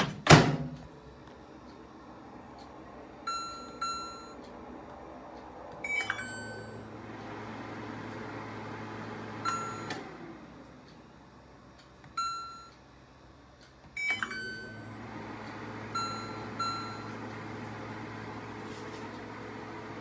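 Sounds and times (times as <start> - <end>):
microwave oven humming: 0.0 - 20.0
keypad beep: 3.3 - 4.4, 5.8 - 6.8, 12.1 - 12.8, 14.0 - 14.8, 16.0 - 17.1
microwave click: 8.6 - 10.3.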